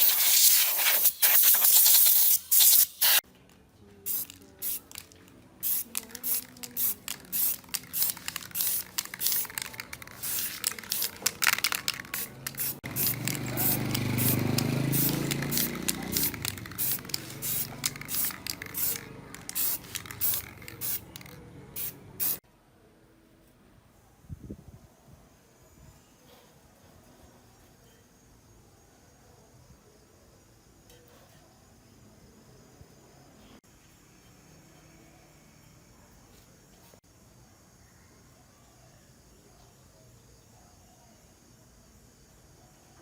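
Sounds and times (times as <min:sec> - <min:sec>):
short bursts of hissing spray: 0:00.0 - 0:03.2, 0:04.1 - 0:22.4.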